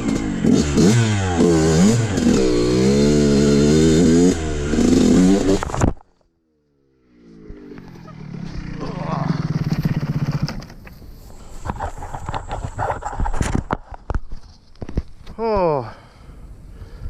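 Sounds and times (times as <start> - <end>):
dirt bike engine revving: 0.0 - 5.8, 7.2 - 10.8.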